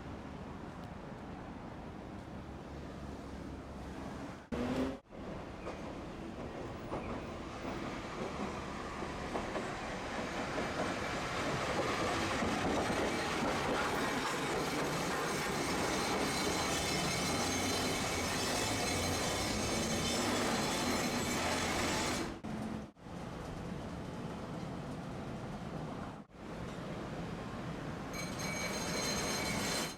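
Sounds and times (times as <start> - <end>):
streetcar wheels rumbling on rails: 0.1 - 29.9
high wheel squeal: 13.9 - 22.4, 28.1 - 29.9.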